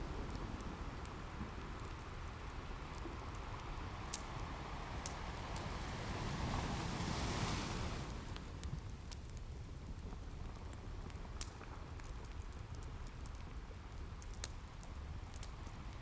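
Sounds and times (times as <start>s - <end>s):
wood fire crackling: 0.0s - 16.0s
ocean surf rumbling: 4.0s - 8.4s.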